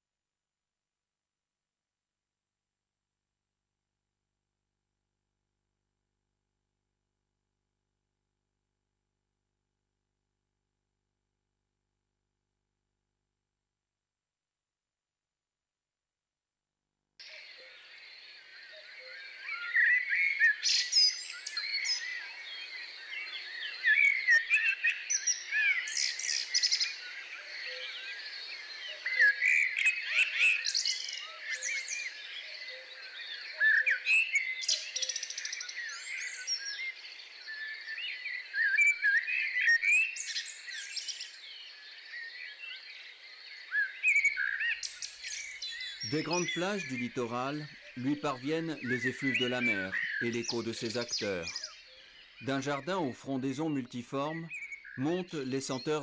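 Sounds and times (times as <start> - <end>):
songbirds chirping chorus: 17.2 - 56.0.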